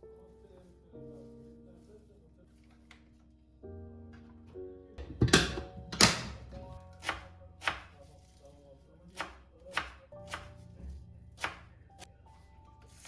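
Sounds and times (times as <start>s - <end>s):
knife chopping on cutting board: 5.1s - 8.0s, 9.1s - 12.1s.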